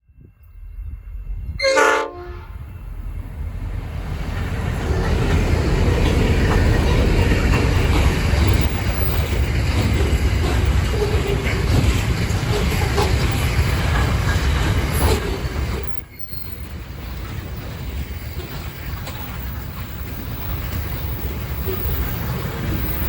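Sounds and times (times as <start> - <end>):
freight train rumbling past: 0.1 - 23.0
diesel locomotive horn: 1.5 - 2.8.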